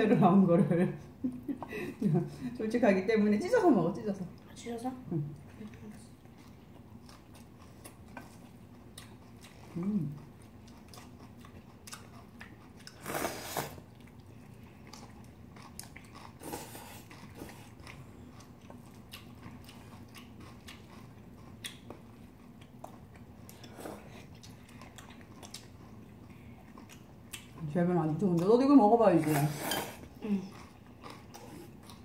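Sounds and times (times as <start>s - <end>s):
chewing and crunching food: 3.6s - 32.0s.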